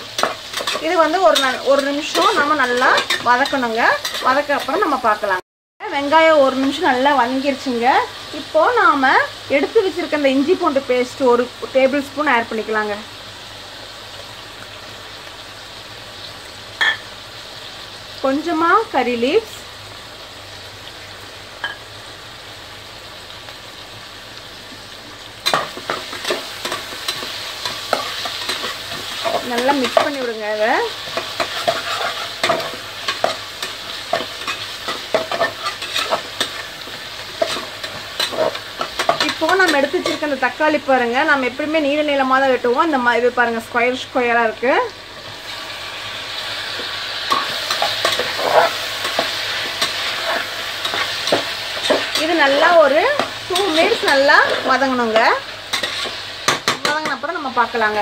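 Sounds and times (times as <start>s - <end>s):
spoon scraping a pan: 0.0s - 4.8s, 25.4s - 30.3s, 30.9s - 40.4s, 46.7s - 57.2s
onions sizzling in oil: 0.0s - 58.0s
spoon scraping metal pot: 31.1s - 33.7s, 47.3s - 52.4s.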